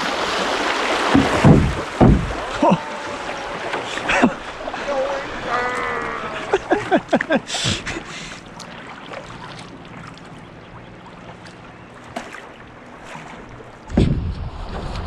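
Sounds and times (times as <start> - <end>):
river water rushing around canoe: 0.0 - 14.0
wind buffeting microphone: 13.8 - 15.0.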